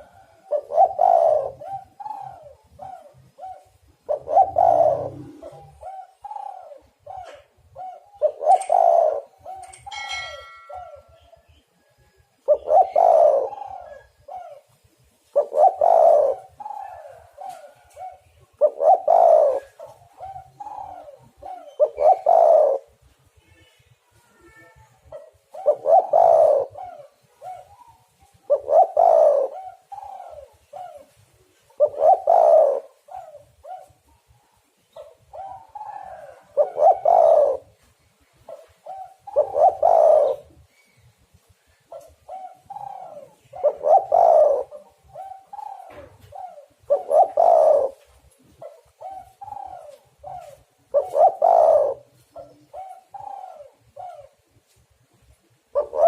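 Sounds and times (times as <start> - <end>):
dove cooing: 0.0 - 23.1, 24.5 - 56.0.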